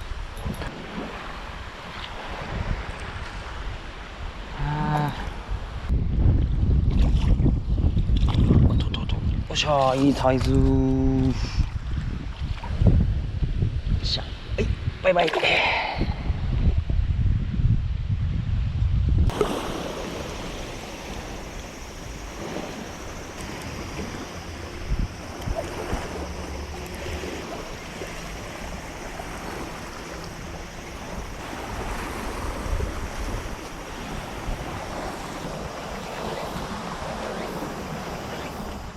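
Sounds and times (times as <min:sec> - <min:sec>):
surf washing: 0:00.0 - 0:05.9, 0:19.3 - 0:38.9
wind on microphone: 0:00.0 - 0:38.9.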